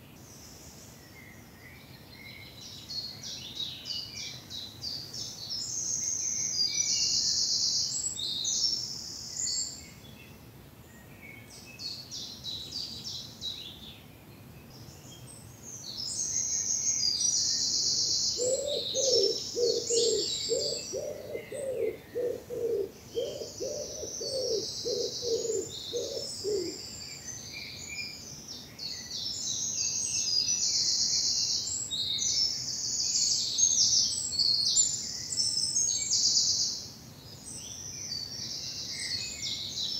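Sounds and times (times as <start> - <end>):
songbirds twittering: 0.0 - 39.9
low cooing call: 18.3 - 26.8.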